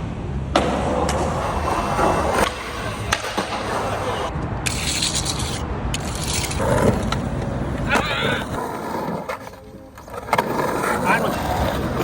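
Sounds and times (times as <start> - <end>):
skateboard wheels rolling on pavement: 0.0 - 12.0
skateboard clacks: 0.5 - 4.4, 6.6 - 12.0.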